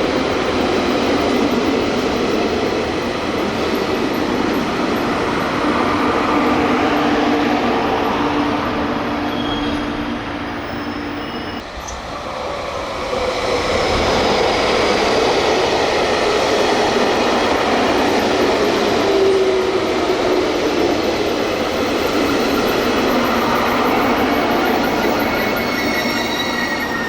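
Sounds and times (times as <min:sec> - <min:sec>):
train running and wheel noise: 0:00.0 - 0:27.0
faint high wheel squeal: 0:09.0 - 0:12.0, 0:22.1 - 0:27.0.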